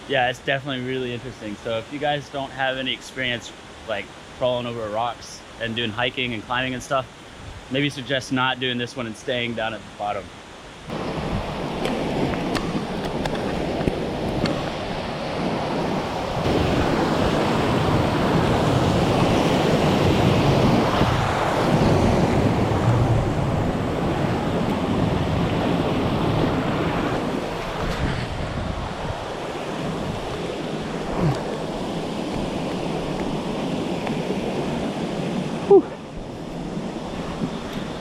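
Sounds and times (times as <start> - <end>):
wind buffeting the microphone: 10.9 - 38.0.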